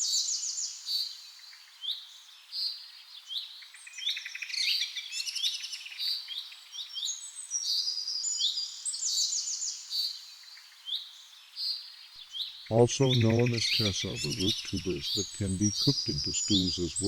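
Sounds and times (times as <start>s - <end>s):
birds chirping: 12.7s - 17.0s.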